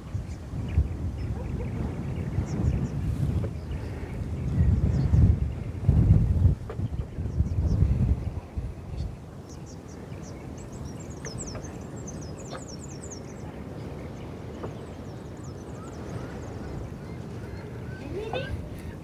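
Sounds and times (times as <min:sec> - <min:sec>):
wind rumble on microphone: 0:00.0 - 0:19.0
small birds twittering: 0:08.9 - 0:19.0.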